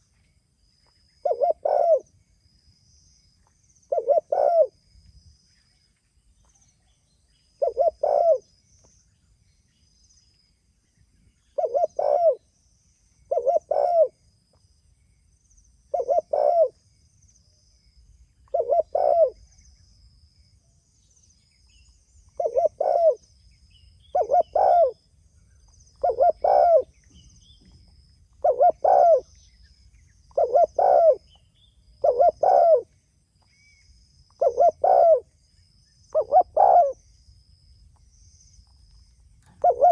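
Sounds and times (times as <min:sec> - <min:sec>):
faint high chirping: 0:00.0 - 0:39.9
dove cooing: 0:01.2 - 0:02.1, 0:03.9 - 0:04.8, 0:07.6 - 0:08.5, 0:11.6 - 0:12.4, 0:13.3 - 0:14.2, 0:15.9 - 0:16.8, 0:18.5 - 0:19.4, 0:22.4 - 0:23.2, 0:24.1 - 0:25.0, 0:26.0 - 0:27.0, 0:28.4 - 0:29.4, 0:30.3 - 0:31.4, 0:32.0 - 0:32.9, 0:34.4 - 0:35.3, 0:36.1 - 0:37.0, 0:39.4 - 0:39.9.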